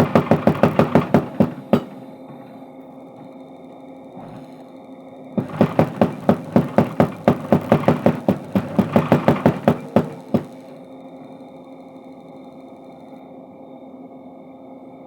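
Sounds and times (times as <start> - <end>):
power hammer striking hot steel: 0.0 - 3.3, 5.4 - 10.8
hammer motor humming: 0.0 - 10.9.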